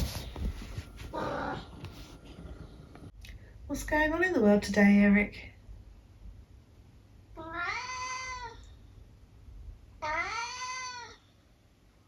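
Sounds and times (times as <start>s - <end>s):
cat meowing: 7.4s - 8.6s, 10.0s - 11.2s.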